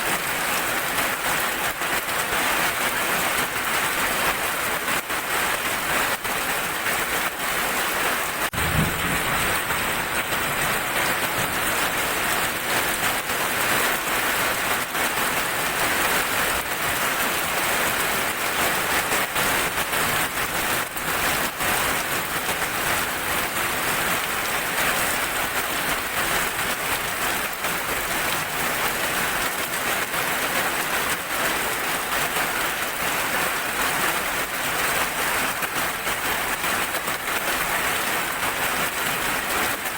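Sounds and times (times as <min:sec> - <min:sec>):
heavy rain falling: 0:00.0 - 0:39.9
sharp raindrop hits: 0:08.4 - 0:14.1
brief low thump: 0:08.6 - 0:09.5.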